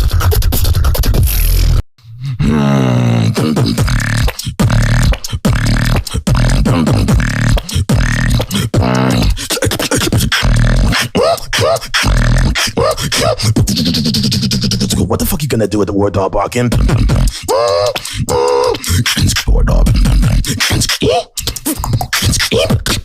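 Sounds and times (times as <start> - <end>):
beatboxing kick and snare: 0.0 - 1.8, 3.1 - 15.5, 16.6 - 23.0
deep held bass tone: 2.4 - 9.4.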